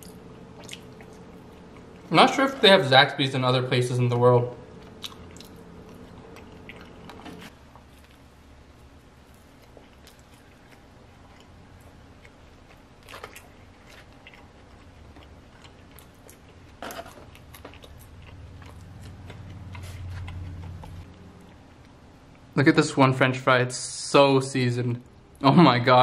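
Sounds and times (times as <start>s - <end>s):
chewing with crunches: 0.0s - 2.1s, 4.7s - 22.5s.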